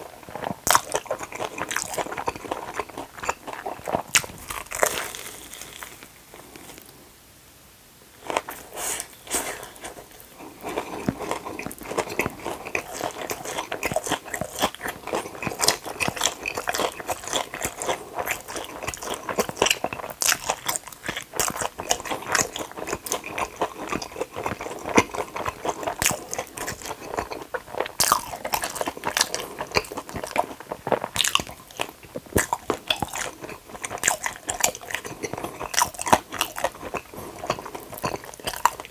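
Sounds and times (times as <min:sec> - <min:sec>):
person chewing crunchy food: 0:00.0 - 0:07.0, 0:08.2 - 0:38.9.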